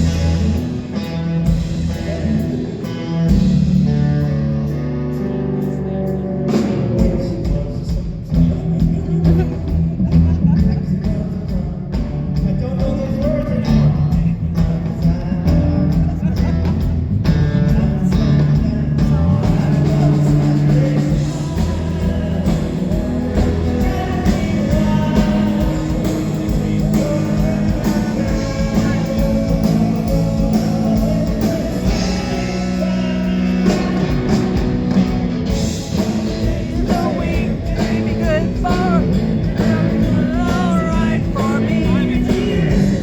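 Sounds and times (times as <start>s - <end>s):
guitar: 0.0s - 43.0s
live rock band playing: 0.0s - 43.0s
person singing: 17.5s - 35.0s, 35.8s - 43.0s.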